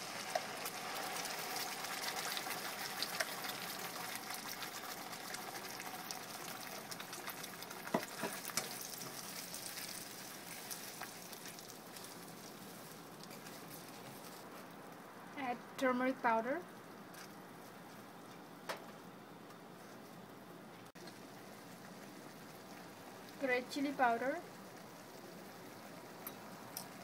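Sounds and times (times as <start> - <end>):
paste sizzling in butter: 0.0 - 14.5
spatula stirring in pan: 0.0 - 14.6.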